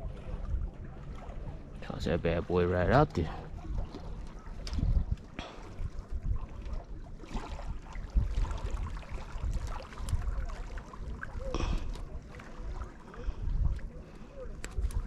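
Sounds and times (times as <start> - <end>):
lake water lapping: 0.0 - 15.0
gusty wind on microphone: 3.6 - 15.0.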